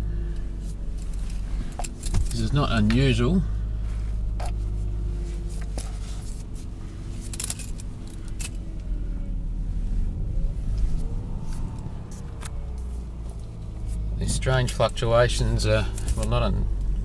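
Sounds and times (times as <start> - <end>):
car engine fast idle fluctuating: 3.1 - 10.0
light clicks and jingles: 5.4 - 9.0.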